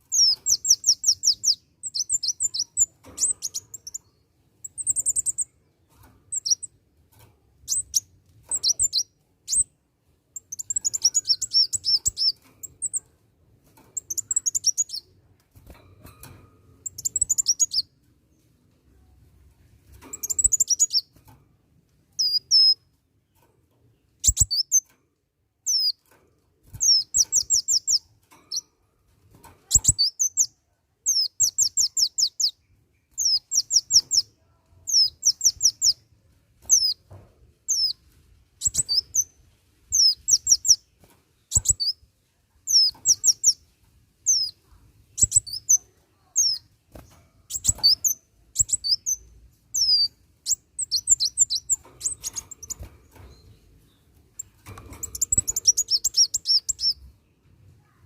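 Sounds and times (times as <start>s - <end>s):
sunbird chirping: 0.1s - 5.6s, 10.4s - 13.0s, 26.8s - 28.7s, 29.7s - 34.3s, 34.9s - 36.0s, 38.6s - 42.0s, 42.6s - 43.6s, 44.2s - 46.7s, 47.5s - 57.1s.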